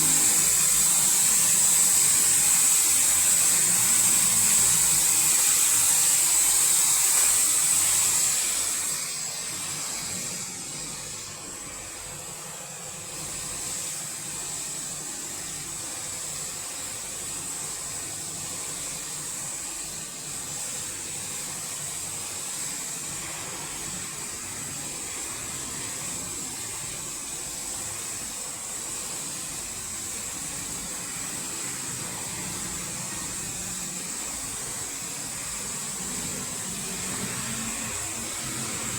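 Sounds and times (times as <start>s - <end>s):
thin high whine: 0.0s - 8.9s
water spray hissing: 0.0s - 8.9s.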